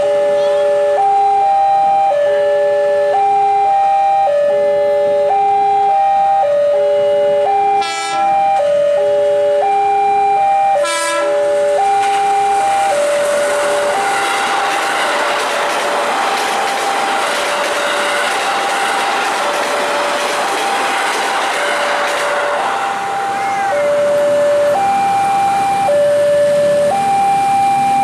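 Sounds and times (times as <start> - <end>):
train horn blasts: 0.0 - 0.9, 7.7 - 8.4, 10.8 - 12.7, 13.6 - 15.8, 16.9 - 24.3
level crossing warning tones: 0.0 - 28.0
passing electric train rattling: 0.0 - 28.0.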